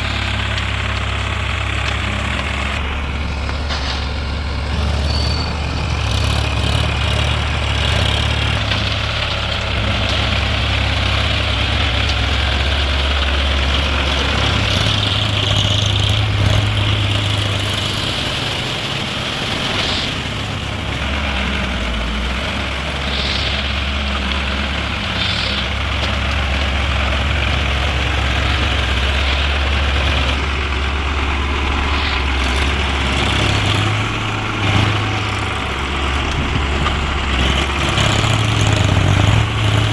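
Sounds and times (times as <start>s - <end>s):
tractor diesel engine droning: 0.0s - 39.9s.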